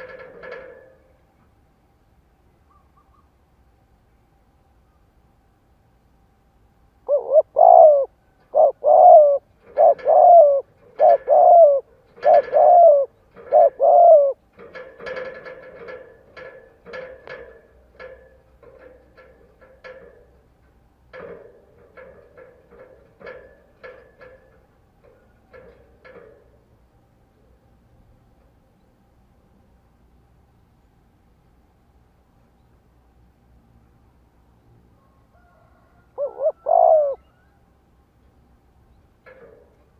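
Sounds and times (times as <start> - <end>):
dove cooing: 7.1 - 15.9, 36.1 - 37.5.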